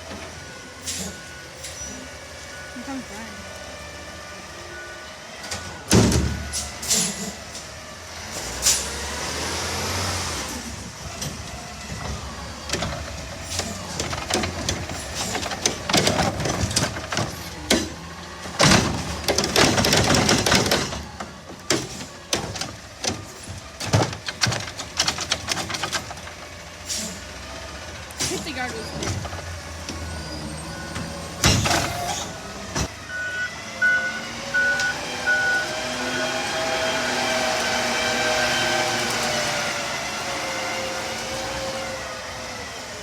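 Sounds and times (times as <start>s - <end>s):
bins clattering into hopper: 12.8s - 26.3s.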